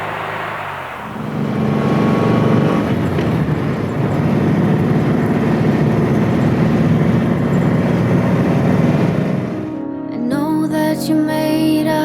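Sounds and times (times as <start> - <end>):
car engine running under load: 0.0 - 9.8.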